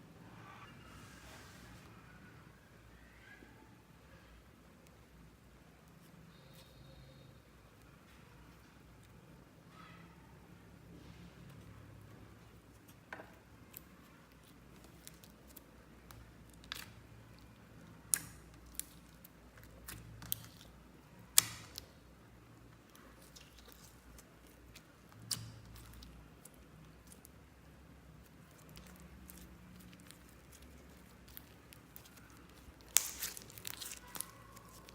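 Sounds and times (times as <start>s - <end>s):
sticky slime handling: 12.3s - 22.0s, 22.6s - 34.9s.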